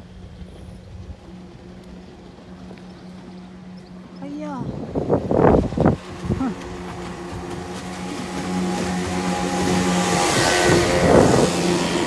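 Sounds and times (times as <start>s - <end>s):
rush of passing vehicle: 7.8s - 12.0s.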